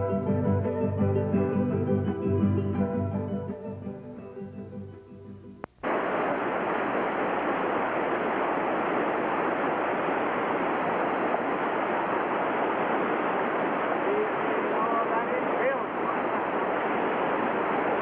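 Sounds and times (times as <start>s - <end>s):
acoustic guitar music: 0.0s - 5.7s
whitewater river rapids rushing: 5.8s - 18.0s.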